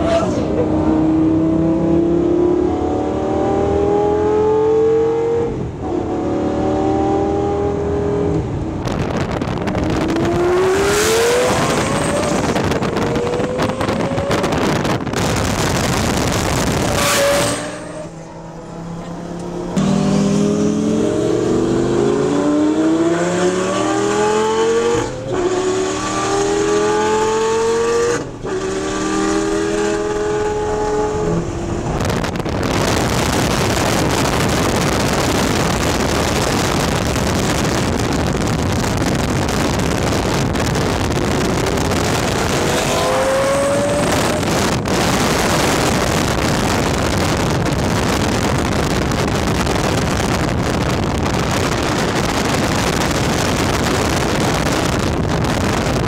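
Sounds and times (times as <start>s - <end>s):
car engine accelerating hard: 0.0s - 56.0s
car passing at high speed: 16.6s - 33.8s
exhaust cracks: 29.5s - 42.9s.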